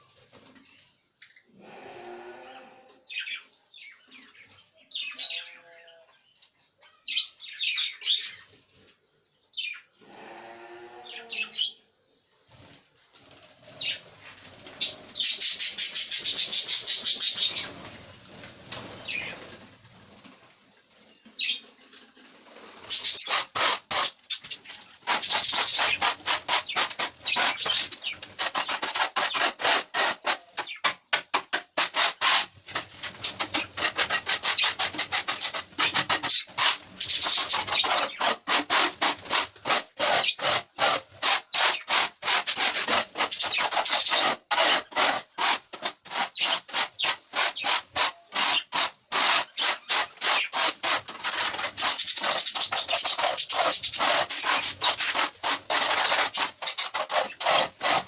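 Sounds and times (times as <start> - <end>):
dry loofah scraping: 22.4 - 58.0.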